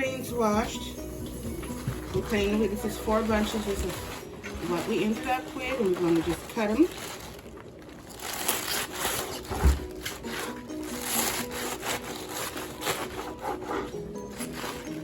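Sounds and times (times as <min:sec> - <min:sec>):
knife slicing greens: 0:08.2 - 0:15.0.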